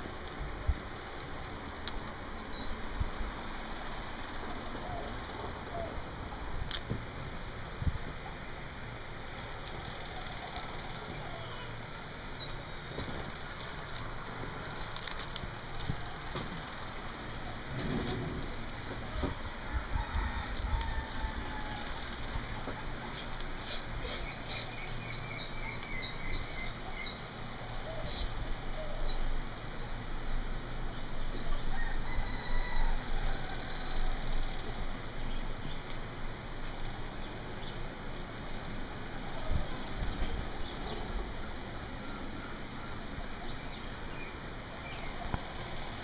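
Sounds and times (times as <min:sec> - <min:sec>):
small birds chirping: 0:02.3 - 0:02.8, 0:10.0 - 0:13.1, 0:22.5 - 0:31.7, 0:34.4 - 0:38.4, 0:39.1 - 0:45.8.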